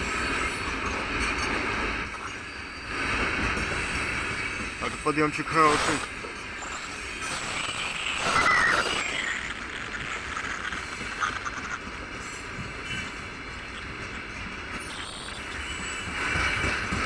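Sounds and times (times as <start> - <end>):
wheels on rails: 9.0 - 17.0.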